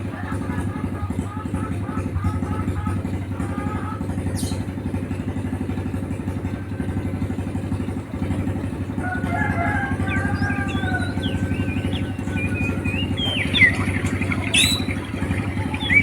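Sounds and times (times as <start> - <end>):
small engine idling: 0.0 - 16.0
bird chirps: 9.0 - 16.0.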